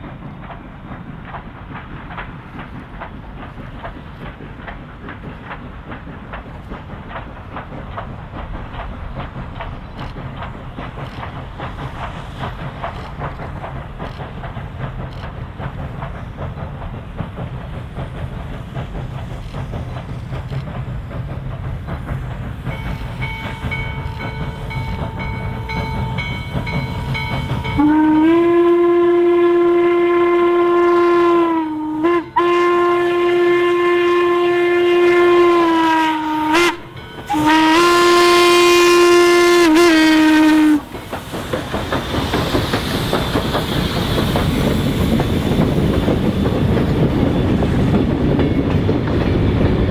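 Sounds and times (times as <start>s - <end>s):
rumble of moving train: 0.0s - 49.9s
steam locomotive whistle blasts: 27.1s - 40.9s.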